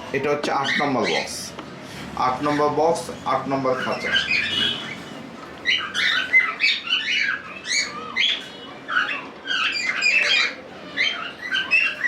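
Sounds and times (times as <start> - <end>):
cockatiels squawking: 0.3 - 1.5, 3.6 - 12.0.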